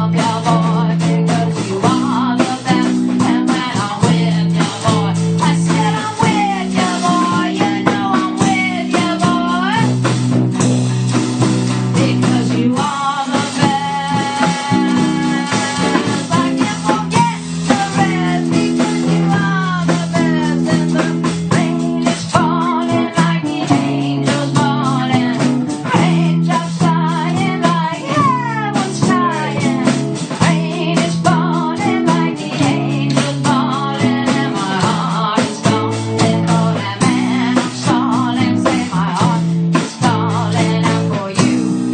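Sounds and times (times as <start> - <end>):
bass notes: 0.0 - 41.9
drum kit: 0.0 - 41.9
electric guitar lead: 14.1 - 34.6.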